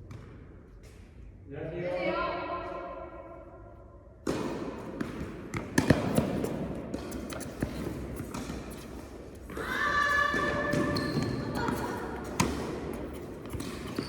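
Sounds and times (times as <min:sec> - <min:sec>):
tennis balls bouncing on court floor: 0:00.0 - 0:01.0, 0:04.2 - 0:14.0.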